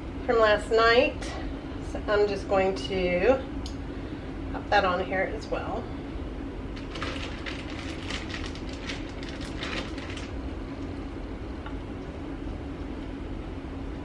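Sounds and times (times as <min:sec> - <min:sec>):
steady low hum: 0:00.0 - 0:14.0
plastic bag crinkling: 0:06.8 - 0:10.9.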